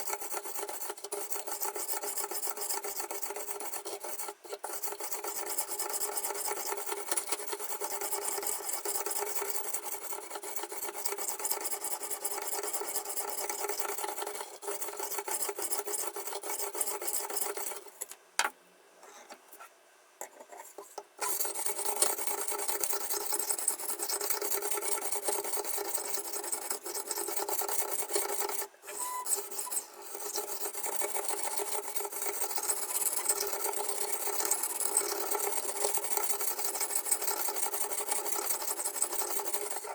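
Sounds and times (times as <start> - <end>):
stone sharpening knife: 21.2 - 39.9.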